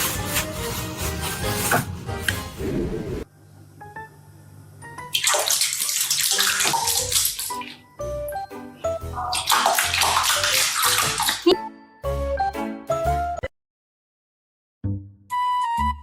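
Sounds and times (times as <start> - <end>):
plucked background music: 4.8 - 13.5
rushing water: 9.3 - 11.4.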